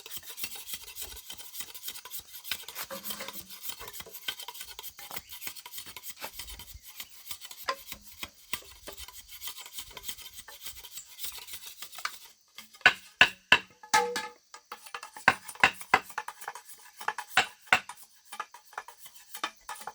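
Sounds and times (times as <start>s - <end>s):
blade scraping hard surface: 0.0s - 19.9s
sharp ringing knocks: 12.9s - 14.5s.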